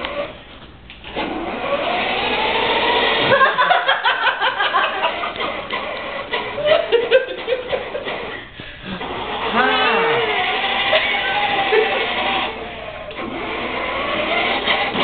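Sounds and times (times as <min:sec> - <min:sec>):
toy car motor whirring: 0:01.1 - 0:03.3, 0:05.3 - 0:06.6, 0:09.0 - 0:15.0.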